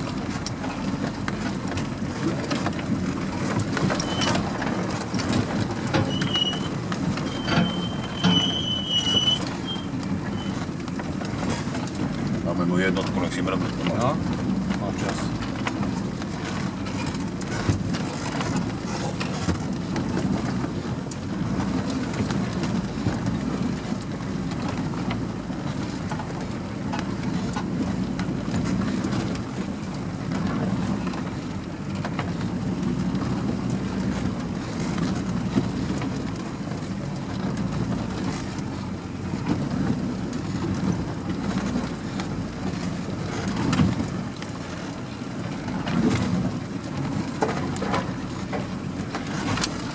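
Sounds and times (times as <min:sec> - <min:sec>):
vehicle engine running at low revs: 0:00.0 - 0:49.9.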